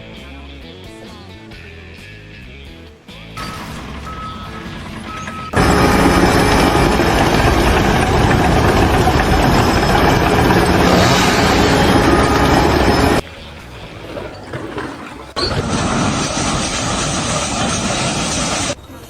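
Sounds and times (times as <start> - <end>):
loud steady machine noise: 3.4 - 13.2, 15.4 - 18.8.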